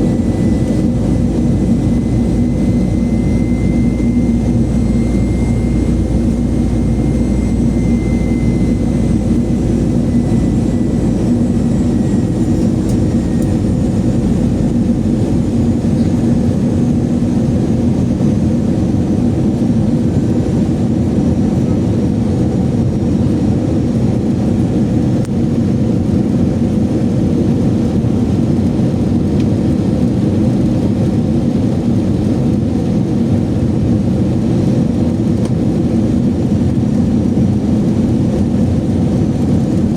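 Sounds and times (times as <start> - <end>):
faint high whine: 0.0 - 22.2
jet cabin rumble: 0.0 - 39.9.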